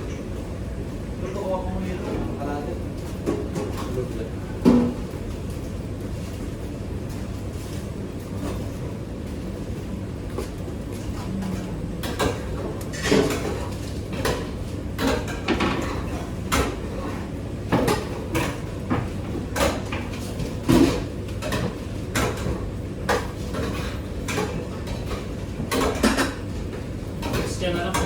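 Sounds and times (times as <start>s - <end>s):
steady low hum: 0.0s - 28.0s
dishes and pans clinking: 12.0s - 26.5s.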